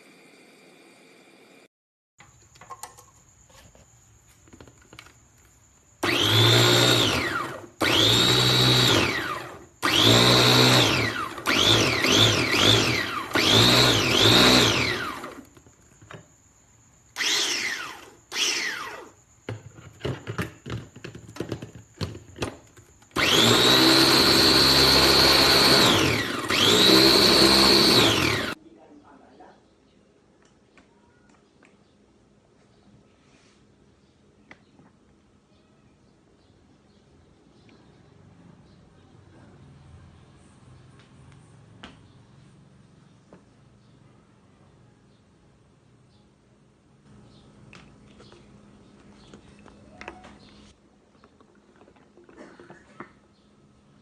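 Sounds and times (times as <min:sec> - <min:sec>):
food processor motor whining: 0:06.0 - 0:15.5, 0:17.2 - 0:19.2, 0:23.1 - 0:28.6.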